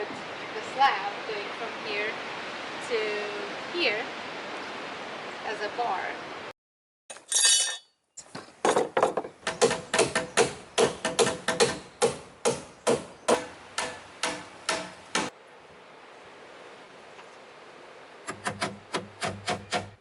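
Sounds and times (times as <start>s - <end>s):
hammer driving nails into wood: 8.7s - 15.3s.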